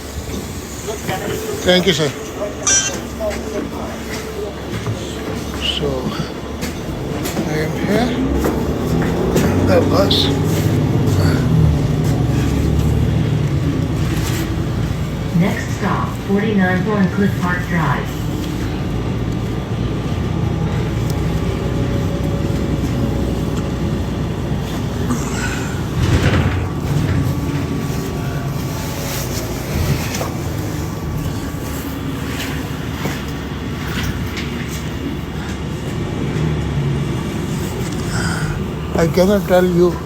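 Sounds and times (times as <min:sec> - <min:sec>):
bus engine and road rumble: 0:00.0 - 0:40.0
knocks and rattles: 0:26.0 - 0:28.0.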